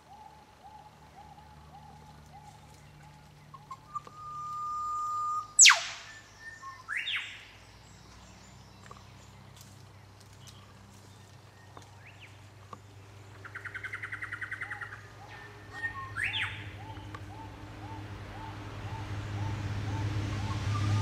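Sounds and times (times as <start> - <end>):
short repeated bird notes: 3.7 - 7.4
upward-sweeping bird note: 4.6 - 7.2.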